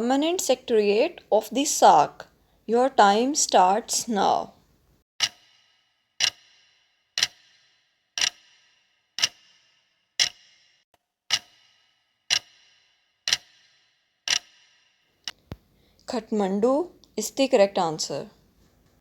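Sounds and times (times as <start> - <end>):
clock ticking: 5.2 - 10.6, 11.3 - 15.6.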